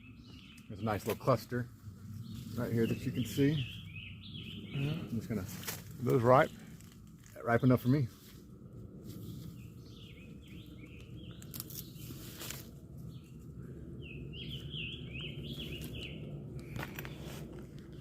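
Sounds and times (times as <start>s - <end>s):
low outdoor rumble: 0.0s - 18.0s
songbird singing: 0.0s - 18.0s.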